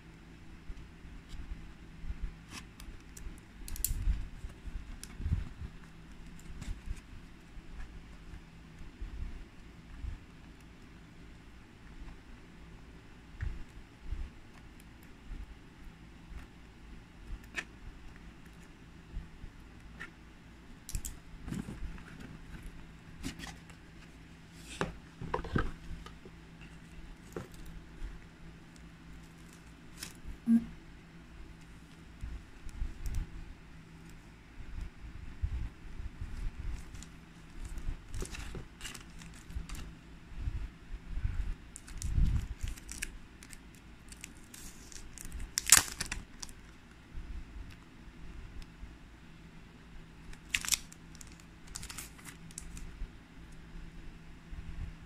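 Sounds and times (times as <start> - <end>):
wrapping rustling: 36.2 - 39.9, 41.8 - 46.8, 50.3 - 52.8
packaging crinkling tear: 37.7 - 39.9, 41.8 - 46.6, 50.3 - 52.8
packaging rustling and clicking: 50.3 - 52.8.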